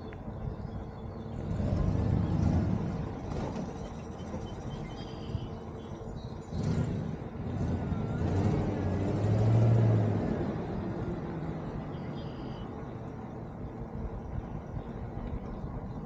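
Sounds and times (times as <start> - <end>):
vehicle passing by: 1.3 - 3.9, 6.4 - 12.1.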